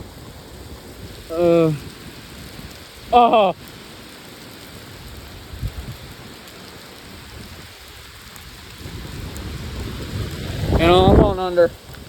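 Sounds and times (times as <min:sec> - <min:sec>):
heavy rain: 0:00.0 - 0:12.0
thunder rumbling: 0:07.2 - 0:12.0.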